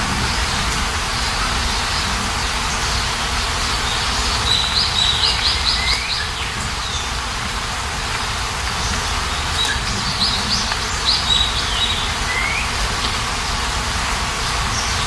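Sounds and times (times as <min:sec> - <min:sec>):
steady rain hiss: 0:00.0 - 0:15.0
songbird calling: 0:00.2 - 0:07.2, 0:08.8 - 0:13.6.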